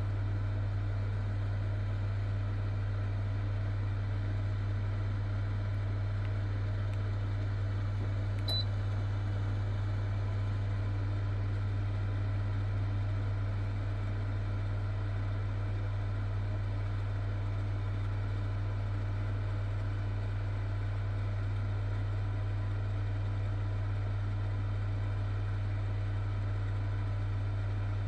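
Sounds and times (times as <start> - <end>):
fan heater whirring and humming: 0.0 - 28.0
brief click: 8.4 - 8.7.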